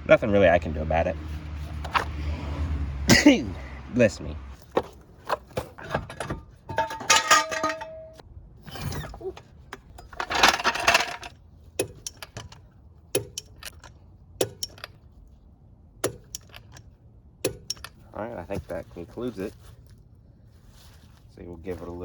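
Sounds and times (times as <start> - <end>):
small metal objects clinking: 6.1 - 8.2, 10.0 - 11.3
short rustle: 18.5 - 22.0.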